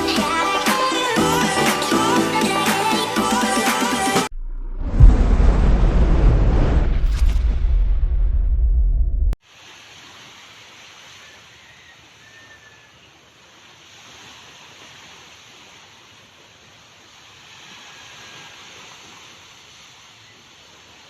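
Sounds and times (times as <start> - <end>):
sea waves washing in: 9.4 - 11.6, 13.4 - 21.0.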